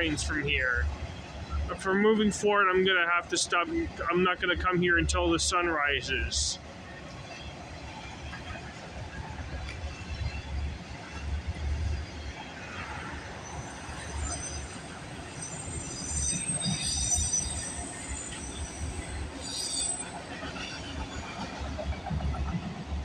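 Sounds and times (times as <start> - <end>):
freight train cars rumbling: 0.0 - 23.0
steel wheel squeal: 12.7 - 21.5.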